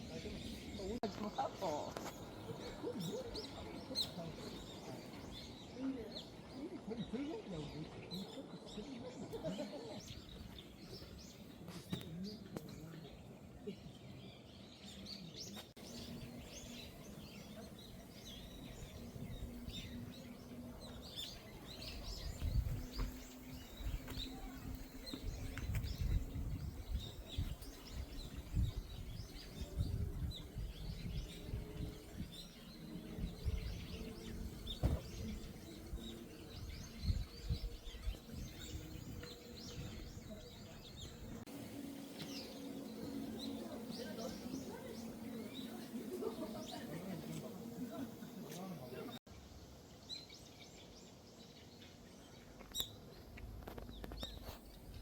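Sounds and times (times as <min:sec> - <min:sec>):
small birds chirping: 0:00.0 - 0:55.0
low thuds and rumbles: 0:34.6 - 0:35.4.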